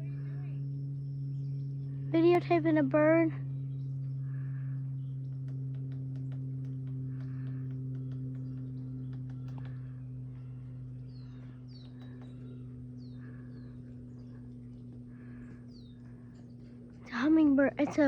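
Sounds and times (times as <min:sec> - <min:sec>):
steady low hum: 0:00.0 - 0:18.0
bird chirping: 0:06.1 - 0:17.1.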